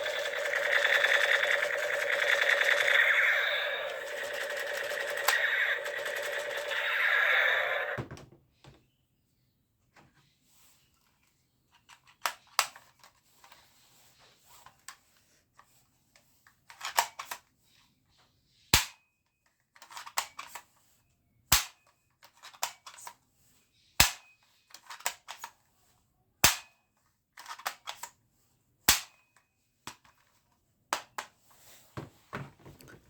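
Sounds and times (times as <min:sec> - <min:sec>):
toy gun shots: 0:00.0 - 0:08.0, 0:24.0 - 0:24.3, 0:26.4 - 0:26.8, 0:28.9 - 0:29.2
plastic clicks and rattling: 0:19.8 - 0:20.6, 0:27.4 - 0:28.1.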